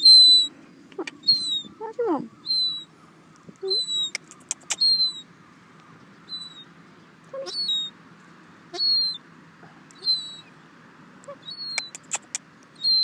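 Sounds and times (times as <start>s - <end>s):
gull calling: 0.0s - 3.0s, 3.6s - 5.3s, 7.3s - 7.9s, 8.7s - 9.2s, 10.0s - 10.5s, 11.2s - 13.0s.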